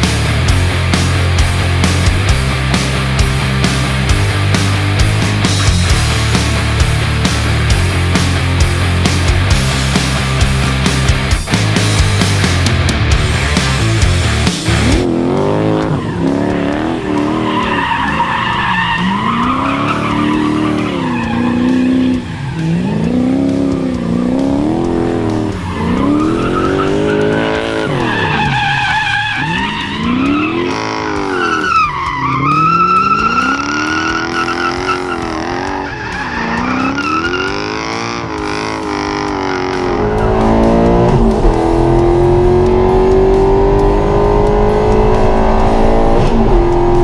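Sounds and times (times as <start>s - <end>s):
engine revving: 0.0s - 47.0s
tyres squealing: 15.8s - 38.4s.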